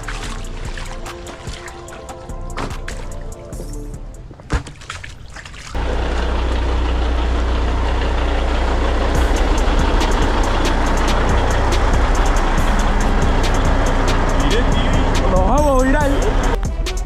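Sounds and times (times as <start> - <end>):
water spraying: 0.0 - 6.6, 7.6 - 16.6
deep rumble: 5.8 - 16.6.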